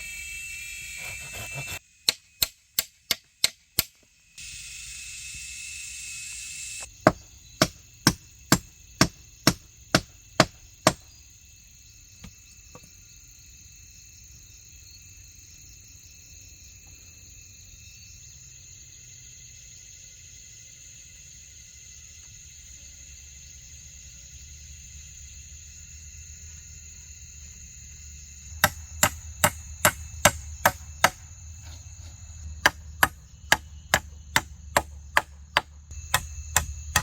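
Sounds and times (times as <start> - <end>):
blade chopping bamboo: 1.0 - 4.0, 7.1 - 11.1, 28.6 - 37.0.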